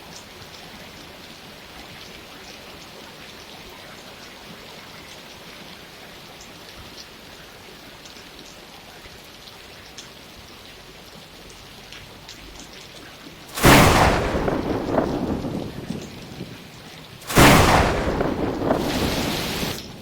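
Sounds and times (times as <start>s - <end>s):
steady rain: 0.0s - 20.0s
thunder crack and rumble: 13.5s - 20.0s.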